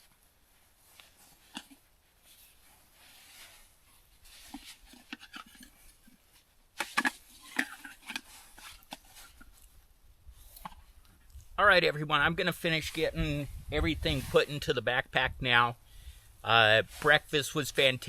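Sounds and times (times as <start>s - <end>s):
camp gear clicking and clattering: 0.9s - 3.6s, 4.2s - 9.8s.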